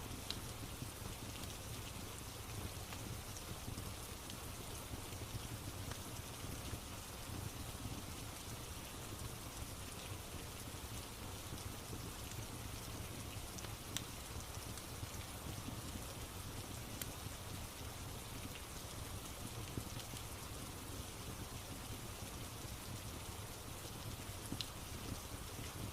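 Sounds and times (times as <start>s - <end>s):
steady rain: 0.0s - 25.9s
wood fire crackling: 0.1s - 25.9s.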